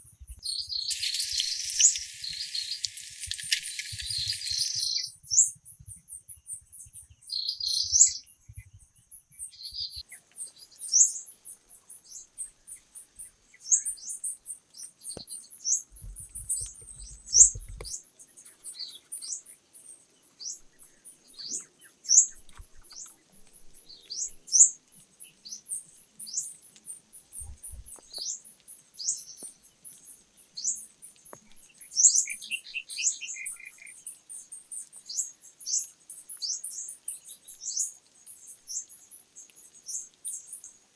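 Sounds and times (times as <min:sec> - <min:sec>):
birds chirping: 0:00.8 - 0:05.0.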